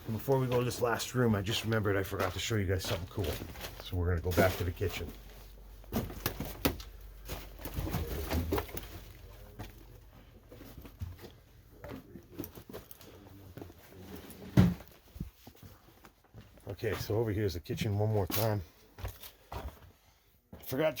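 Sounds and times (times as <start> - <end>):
footsteps in a house: 0.0 - 17.3, 18.2 - 20.8.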